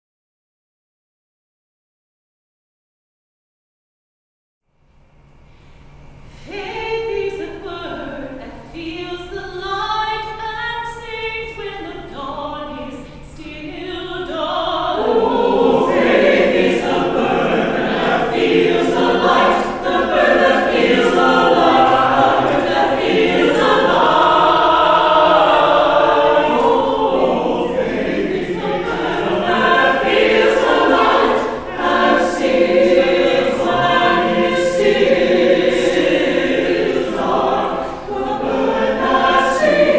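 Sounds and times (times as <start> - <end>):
church choir singing: 11.6 - 39.9.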